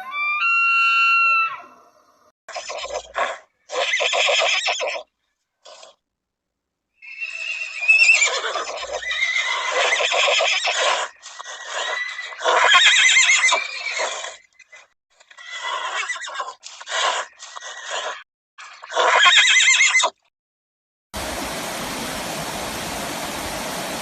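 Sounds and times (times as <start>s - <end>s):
horses neighing: 7.1s - 18.2s.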